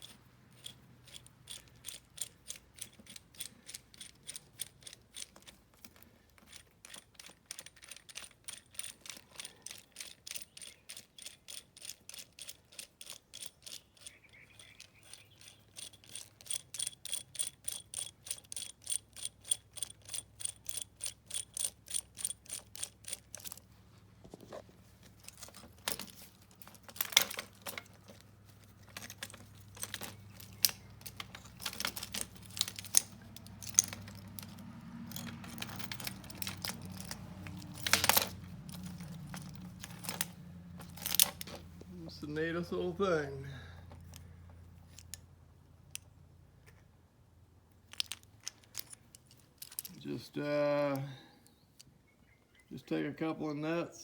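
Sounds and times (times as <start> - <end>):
ratchet wrench clicking: 0.0 - 5.6, 6.4 - 23.6.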